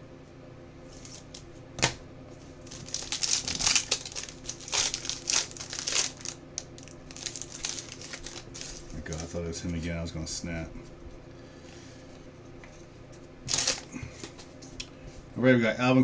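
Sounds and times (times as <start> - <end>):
plastic packaging crinkling: 0.9 - 9.9, 13.4 - 15.0.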